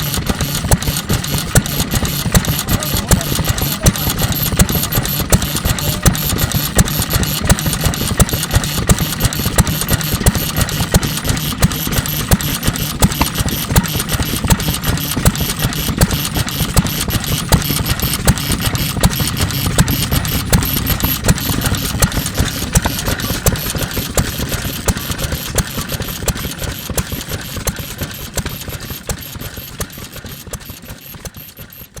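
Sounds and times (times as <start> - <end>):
stationary engine knocking: 0.0 - 32.0.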